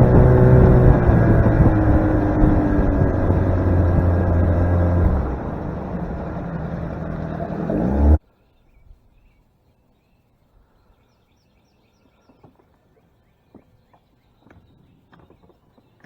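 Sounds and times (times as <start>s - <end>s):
boat motor running: 0.0s - 8.2s
faint bird chirps: 8.2s - 16.0s.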